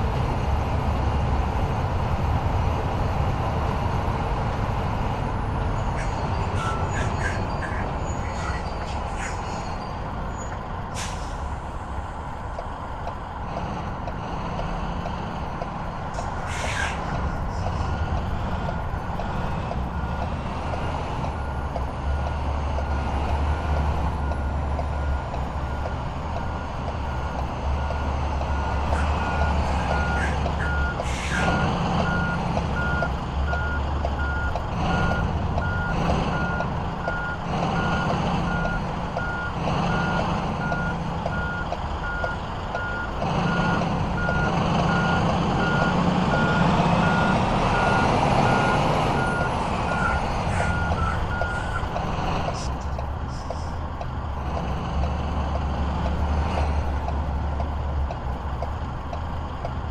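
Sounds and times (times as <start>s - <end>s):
truck engine running: 0.0s - 59.9s
truck reversing alarm beeps: 5.4s - 11.6s, 16.1s - 53.7s.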